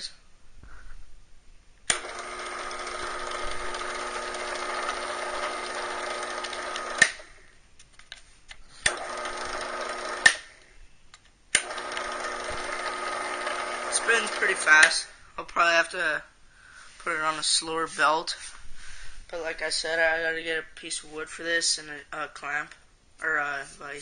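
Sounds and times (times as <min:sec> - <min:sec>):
drill press motor whirring: 0:01.9 - 0:07.4, 0:08.8 - 0:10.6, 0:11.6 - 0:15.0.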